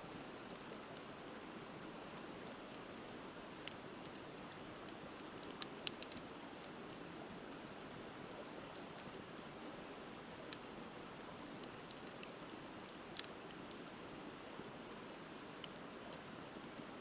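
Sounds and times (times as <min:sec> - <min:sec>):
bonfire crackling and popping: 0:02.1 - 0:08.0.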